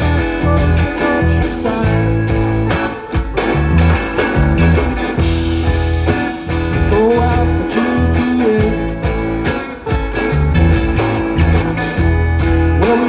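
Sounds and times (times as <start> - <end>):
bass and drums: 0.0 - 13.0
electric guitar: 0.0 - 13.0.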